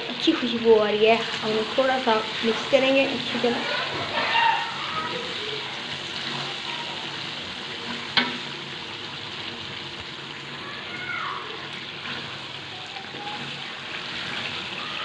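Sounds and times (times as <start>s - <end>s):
chicken sizzling in a pan: 0.0s - 15.0s
spatula knocking on pan: 8.1s - 8.5s.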